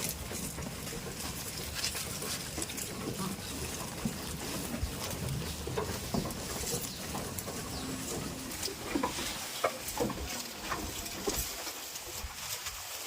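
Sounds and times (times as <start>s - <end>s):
goats feeding with clicks and rustles: 0.0s - 13.0s.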